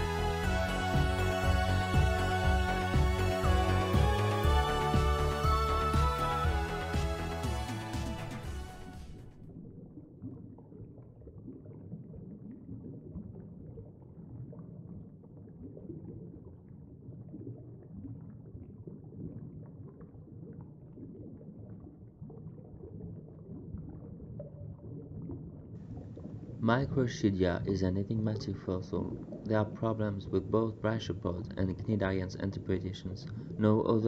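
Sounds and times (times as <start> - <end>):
low underwater rumble: 0.0 - 31.6
faint bubbling ticks: 10.0 - 34.0.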